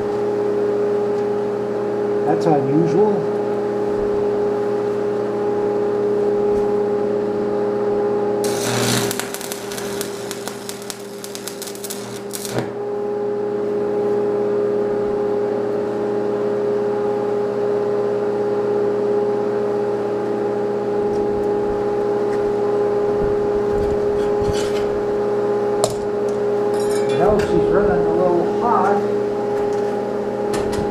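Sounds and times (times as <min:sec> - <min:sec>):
welding arc crackling: 0:08.4 - 0:12.9
welding machine humming: 0:08.4 - 0:15.2.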